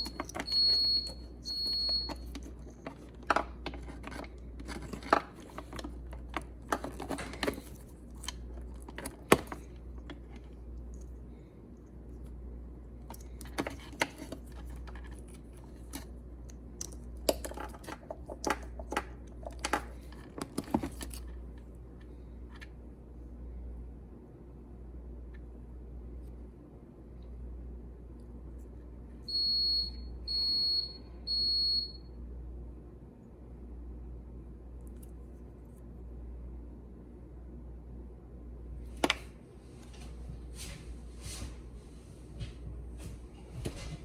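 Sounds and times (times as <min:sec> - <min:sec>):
small parts clicking and rustling: 0:00.0 - 0:12.3, 0:13.0 - 0:22.8
steady low hum: 0:00.0 - 0:44.0.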